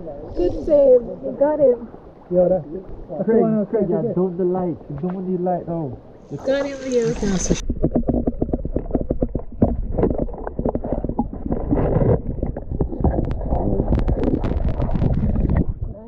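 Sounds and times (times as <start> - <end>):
low rumble of water: 0.0 - 16.0.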